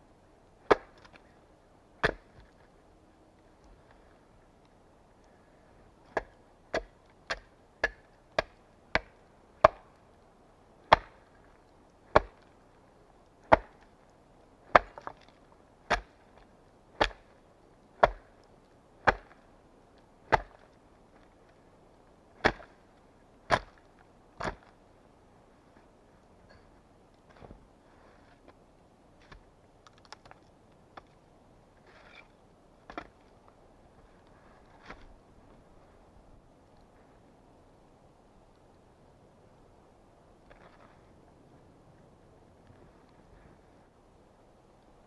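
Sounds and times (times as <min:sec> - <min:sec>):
axe chopping wood: 0:00.6 - 0:01.2, 0:02.0 - 0:02.5, 0:06.1 - 0:10.0, 0:10.9 - 0:11.3, 0:12.1 - 0:12.5, 0:13.5 - 0:13.8, 0:14.7 - 0:15.3, 0:15.9 - 0:16.2, 0:17.0 - 0:17.3, 0:18.0 - 0:18.4, 0:19.0 - 0:19.4, 0:20.3 - 0:20.7, 0:22.4 - 0:22.7, 0:23.5 - 0:23.8, 0:24.4 - 0:24.7.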